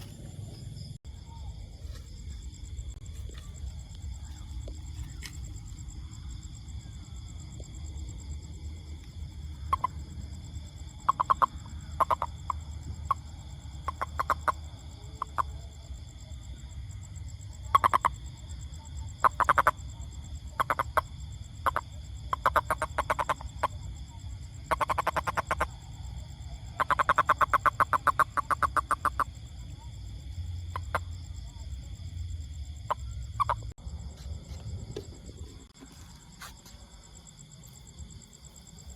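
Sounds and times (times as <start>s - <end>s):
toad croaking and trilling: 8.9s - 15.9s, 17.5s - 29.9s, 30.5s - 31.9s, 32.8s - 33.8s.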